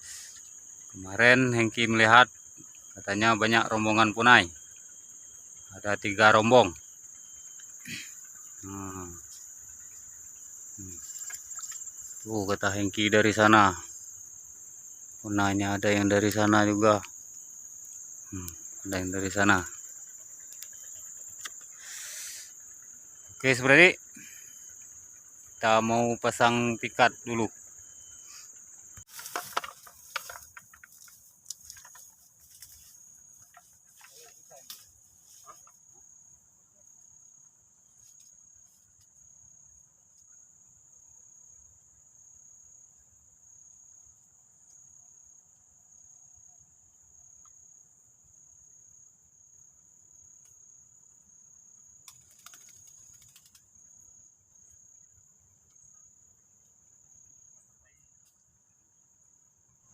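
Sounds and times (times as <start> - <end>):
insects chirring: 0.0 - 59.9
rustling: 29.0 - 35.8.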